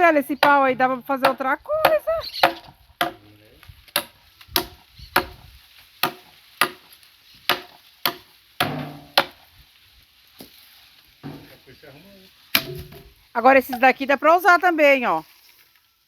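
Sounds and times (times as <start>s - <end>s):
axe blows chopping wood: 2.4s - 3.2s, 3.9s - 6.9s, 7.5s - 9.4s, 12.5s - 13.1s.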